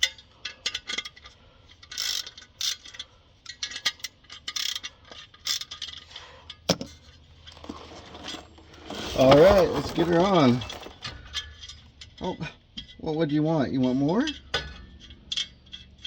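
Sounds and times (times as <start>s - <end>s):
ratchet wrench clicking: 0.0s - 6.1s.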